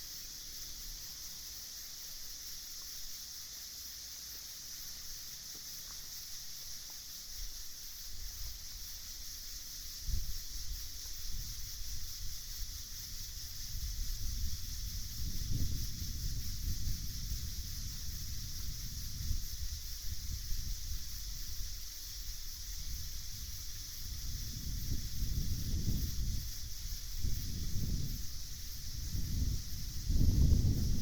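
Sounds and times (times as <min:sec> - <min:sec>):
night insects chorus: 0:00.0 - 0:31.0
wind rumbling on microphone: 0:07.4 - 0:31.0.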